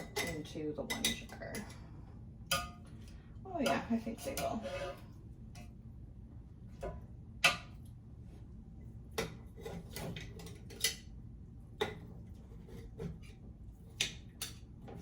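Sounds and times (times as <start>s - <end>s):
kitchen utensils clinking: 0.0s - 1.8s, 3.5s - 5.0s.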